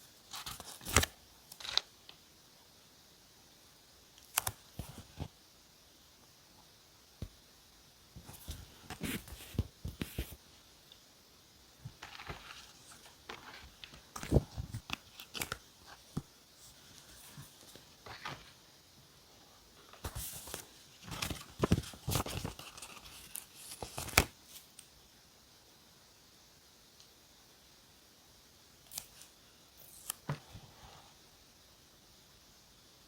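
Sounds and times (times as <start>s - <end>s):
paper rustling and crinkling: 0.3s - 1.9s, 12.0s - 18.6s, 19.9s - 24.7s.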